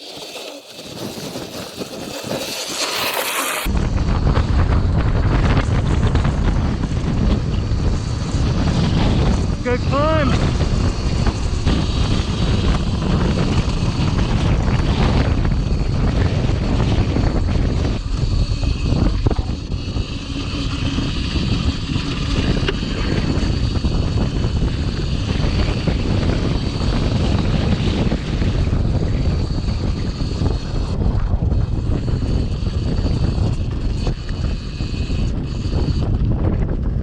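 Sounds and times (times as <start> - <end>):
electric motor whine: 0.0 - 37.0
wind buffeting microphone: 0.0 - 37.0.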